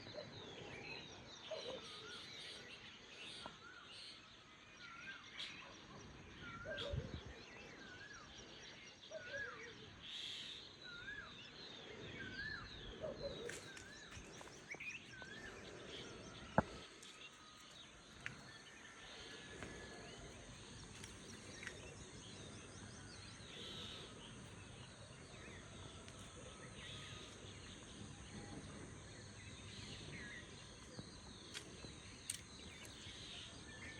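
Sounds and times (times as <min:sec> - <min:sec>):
birds chirping: 0:12.1 - 0:33.9
bird calls: 0:12.2 - 0:33.9.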